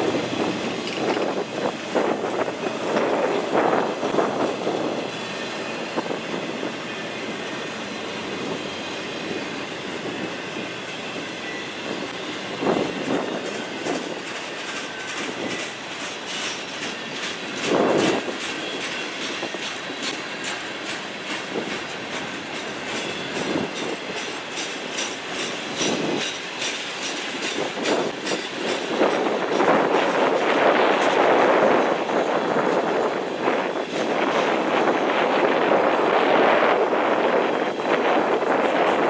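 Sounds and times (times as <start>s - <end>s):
freight train rumbling: 0.0s - 39.0s
wheels clicking over rail joints: 0.5s - 4.9s.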